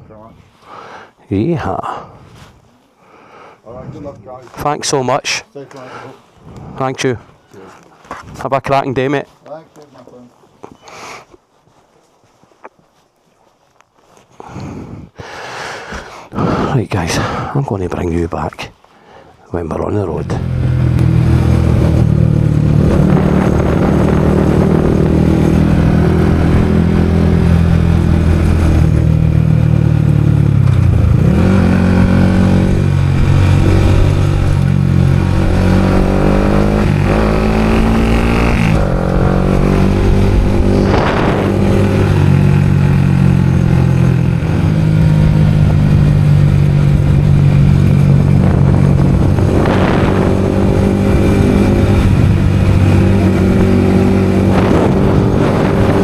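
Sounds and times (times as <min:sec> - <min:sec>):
motorcycle engine running: 0:20.2 - 0:56.0
whooshes: 0:38.2 - 0:42.4.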